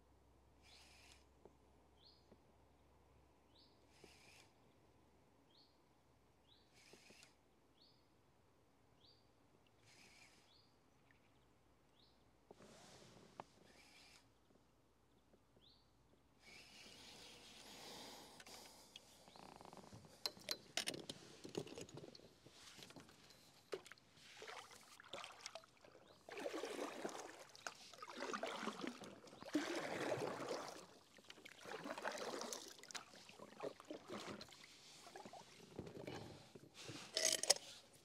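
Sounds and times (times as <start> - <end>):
paddle strokes swishing through water: 22.2 - 38.0.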